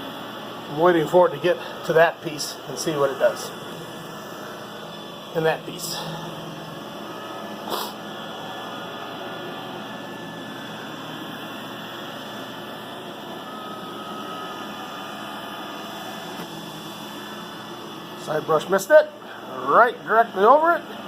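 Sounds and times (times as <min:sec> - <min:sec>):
robot vacuum running on carpet: 0:00.0 - 0:21.0.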